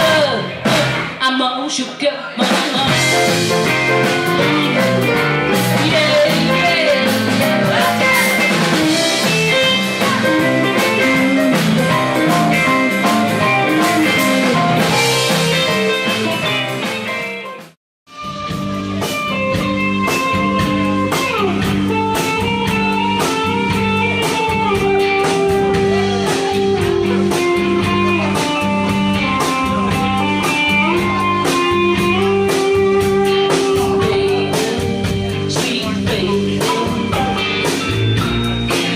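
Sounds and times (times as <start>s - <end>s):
electric guitar: 0.0s - 1.5s, 2.4s - 38.9s
blues band playing: 0.0s - 38.9s
drum kit: 0.0s - 38.9s.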